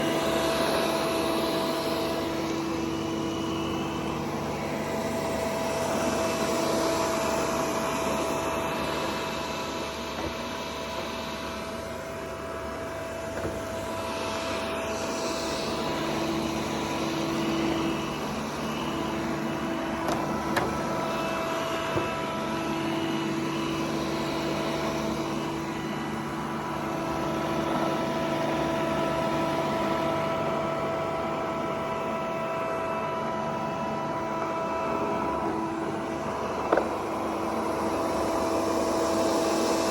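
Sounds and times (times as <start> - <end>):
robot vacuum cleaner whirring: 0.0 - 39.9.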